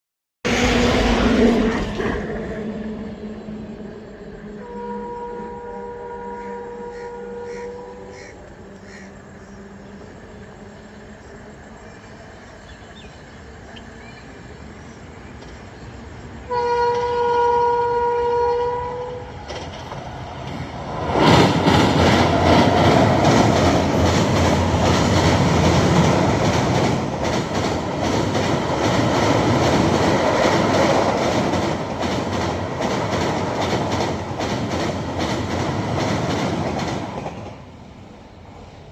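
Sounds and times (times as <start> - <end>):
locomotive horn blast: 4.5 - 8.4, 16.5 - 19.4
train wheels clattering: 19.4 - 37.7.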